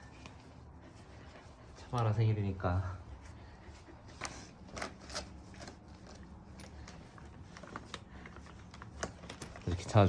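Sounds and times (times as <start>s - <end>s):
dog fidgeting clicks and rustles: 4.0s - 10.0s.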